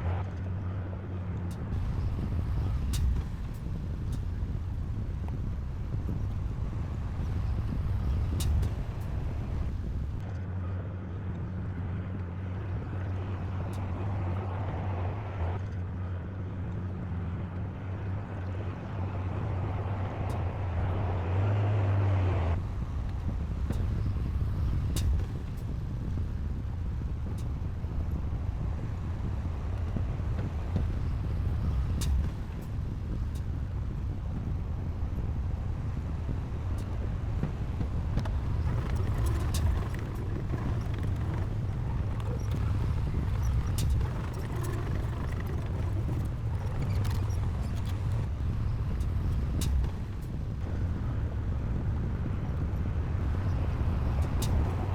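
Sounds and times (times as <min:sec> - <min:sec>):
diesel machinery engine hum: 0:00.0 - 0:54.9
light clicks and clanks: 0:36.8 - 0:50.9.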